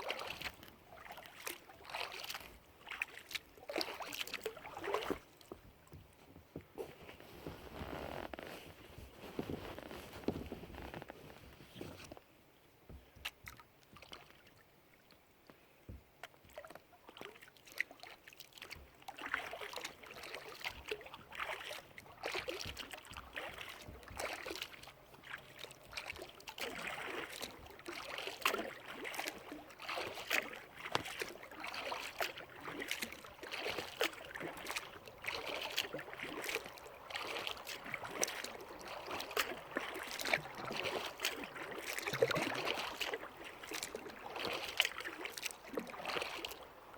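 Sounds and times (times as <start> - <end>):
water dripping off paddle: 0.0 - 6.2, 13.0 - 46.9
paddle splashing in water: 0.0 - 12.2, 12.9 - 46.9.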